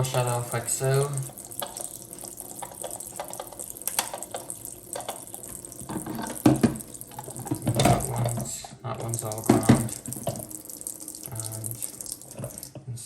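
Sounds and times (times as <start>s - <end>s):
water splashing: 0.0s - 12.8s
tap water running in a sink: 0.0s - 13.0s
plastic filters knocking and clicking: 2.5s - 10.5s.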